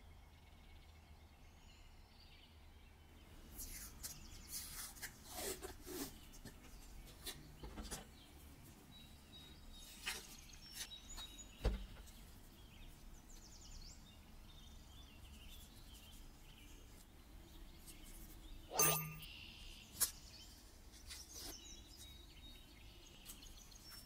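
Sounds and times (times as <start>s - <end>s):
high squeaks: 18.7s - 19.3s.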